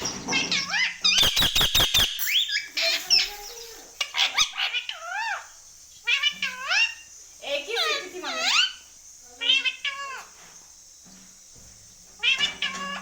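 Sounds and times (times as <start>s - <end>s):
parrot calling and chattering: 0.0s - 10.2s.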